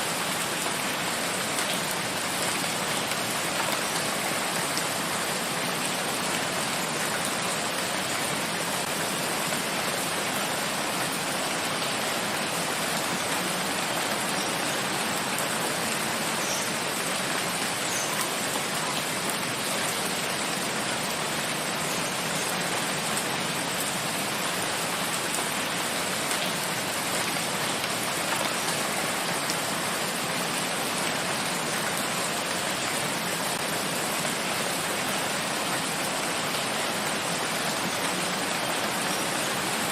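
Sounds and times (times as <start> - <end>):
steady rain in forest: 0.0 - 39.9.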